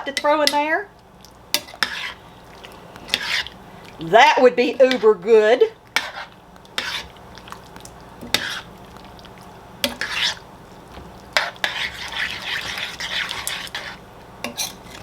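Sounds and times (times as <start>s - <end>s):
spoon scraping a pot: 1.6s - 2.2s, 3.1s - 3.6s, 6.0s - 7.1s, 8.2s - 8.7s, 9.8s - 10.4s, 11.4s - 15.0s.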